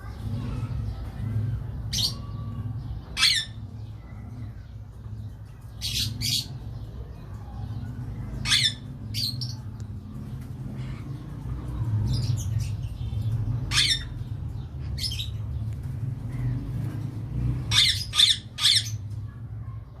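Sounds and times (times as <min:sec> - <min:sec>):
parakeet squawking: 0:03.1 - 0:03.7, 0:08.3 - 0:09.6, 0:13.6 - 0:15.4, 0:17.6 - 0:19.1.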